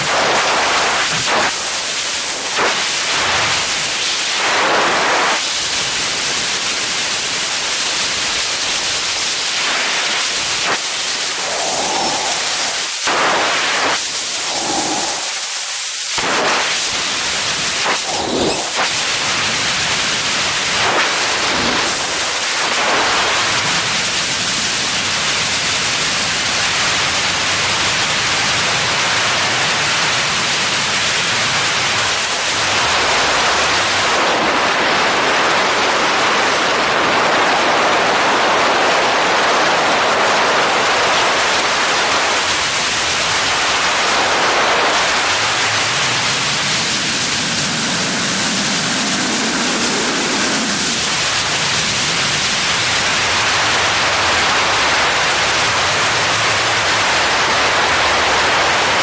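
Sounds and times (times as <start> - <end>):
rushing hiss of air: 8.9 - 23.0, 45.0 - 52.1.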